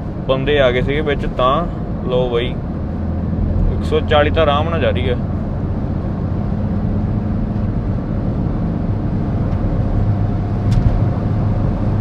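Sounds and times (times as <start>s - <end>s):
car engine hum: 0.0s - 12.0s
road and wind noise: 0.0s - 12.0s.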